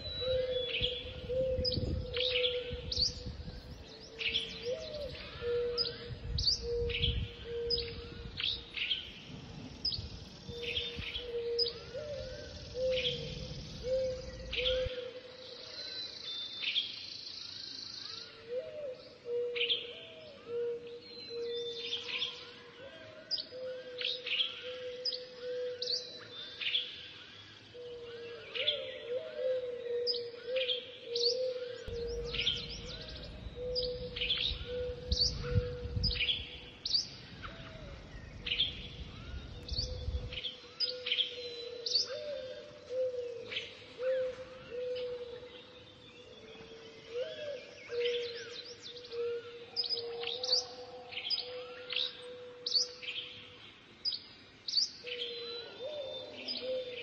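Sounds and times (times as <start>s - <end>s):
wind rumble: 0.0s - 15.1s, 31.8s - 40.8s
birds singing: 0.0s - 57.0s.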